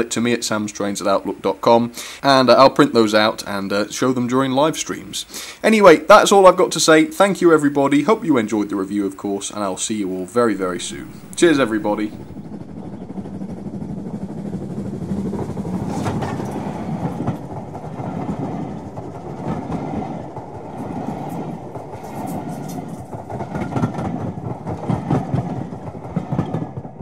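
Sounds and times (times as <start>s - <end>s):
railway coaches rumbling: 0.0s - 27.0s
wheels clicking over rail joints: 6.2s - 27.0s.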